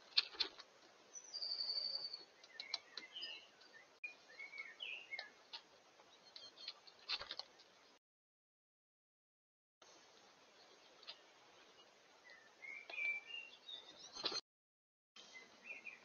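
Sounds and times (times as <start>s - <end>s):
bird chirps: 1.1s - 5.4s, 6.1s - 6.8s, 10.6s - 14.4s, 15.2s - 16.0s.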